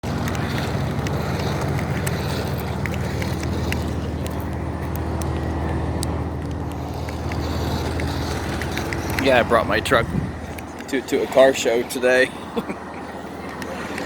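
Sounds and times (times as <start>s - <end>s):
engine running steadily: 0.0s - 14.0s
light clicks and ticks: 0.1s - 9.5s.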